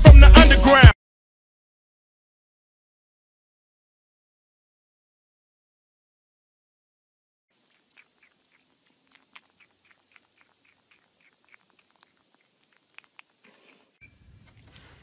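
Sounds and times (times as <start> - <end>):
teeth clicking on plastic: 7.6 - 14.0.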